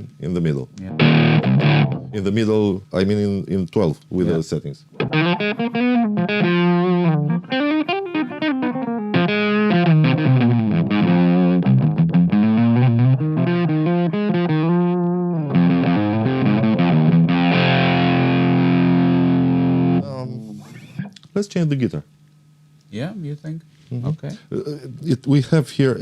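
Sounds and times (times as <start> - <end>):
overdriven electric guitar: 0.8 - 2.2, 5.0 - 20.0.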